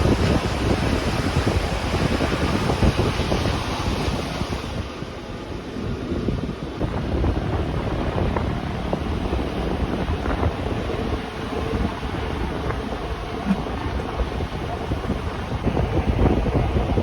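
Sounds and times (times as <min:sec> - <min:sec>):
train wheels rumbling on rails: 0:04.7 - 0:17.0.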